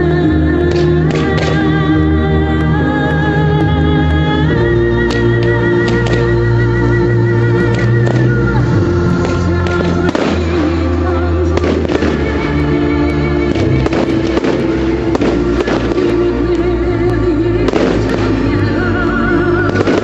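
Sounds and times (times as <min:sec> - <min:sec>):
loud music with sustained notes: 0:00.0 - 0:20.0
fireworks bangs and crackles: 0:00.7 - 0:01.8, 0:05.1 - 0:06.4, 0:07.6 - 0:20.0.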